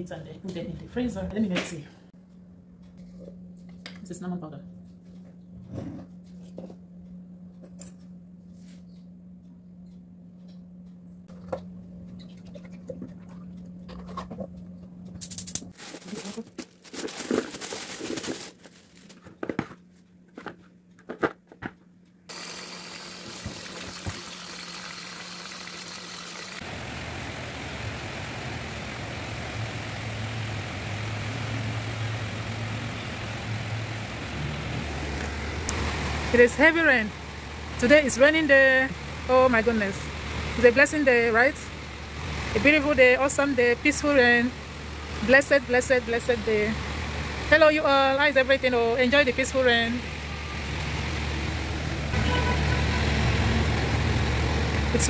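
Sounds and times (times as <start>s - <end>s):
steady low hum: 0.0s - 16.4s
passing car traffic: 50.0s - 55.0s.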